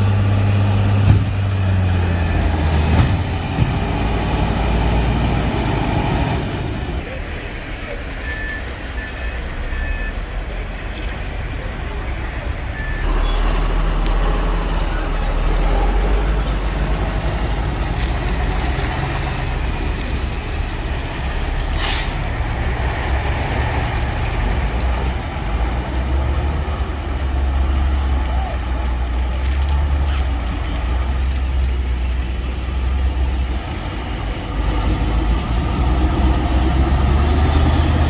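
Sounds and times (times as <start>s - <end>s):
heavy diesel engines under load: 0.0s - 38.0s
air brakes hiss: 21.7s - 22.2s.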